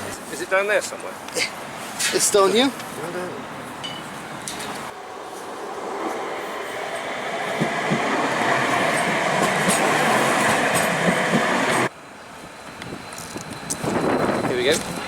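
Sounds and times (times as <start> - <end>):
tram wheels on rails: 3.9 - 15.0.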